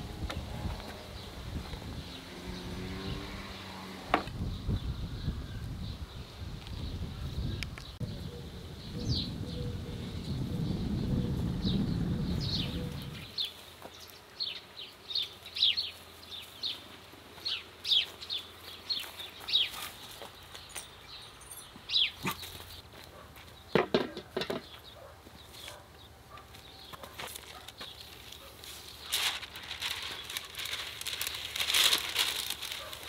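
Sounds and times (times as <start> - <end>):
birds chirping: 0.6 - 33.0
paper rustling: 27.0 - 33.0.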